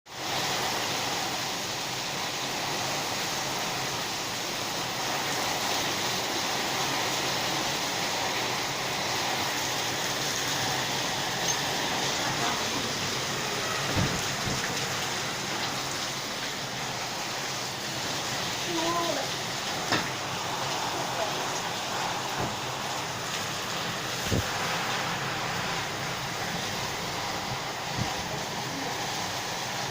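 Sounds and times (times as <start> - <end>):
heavy rain pouring: 0.1 - 29.9
dull low thump: 13.8 - 14.8.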